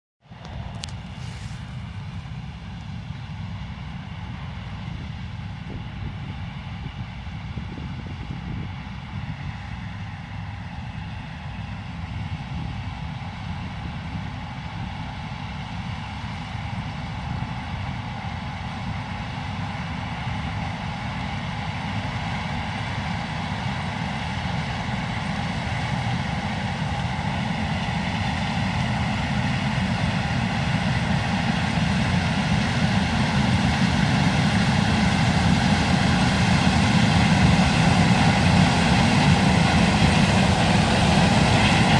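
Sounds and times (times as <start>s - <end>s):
combine harvester running: 0.3s - 41.9s.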